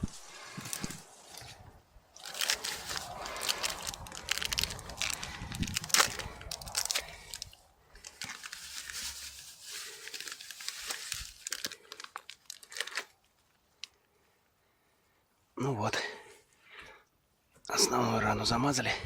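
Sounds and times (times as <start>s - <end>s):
crackling and scraping handling noises: 0.0s - 14.1s.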